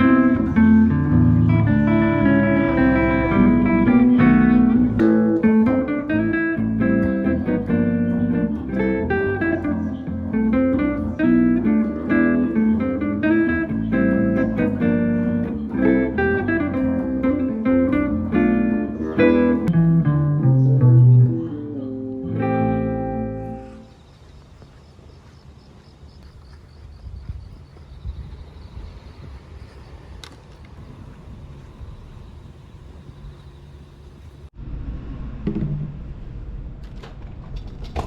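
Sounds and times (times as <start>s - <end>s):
acoustic guitar music: 0.0s - 23.9s.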